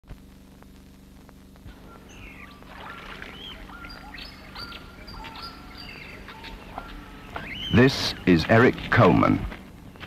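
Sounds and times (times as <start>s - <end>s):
steady low hum: 0.1s - 10.0s
birds whistling calls: 1.7s - 8.9s.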